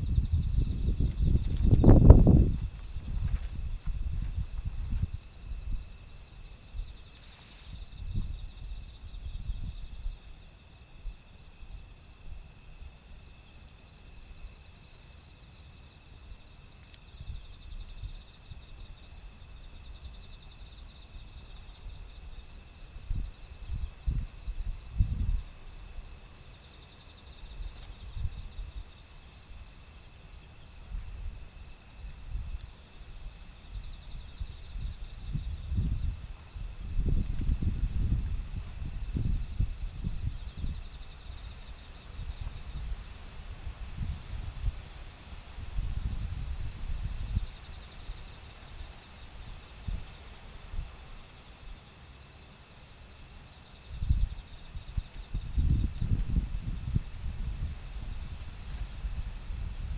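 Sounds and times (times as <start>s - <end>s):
gusty wind buffeting microphone: 0.0s - 10.3s, 21.2s - 26.1s, 30.8s - 51.0s, 53.8s - 59.9s
insects chirping: 0.0s - 59.9s.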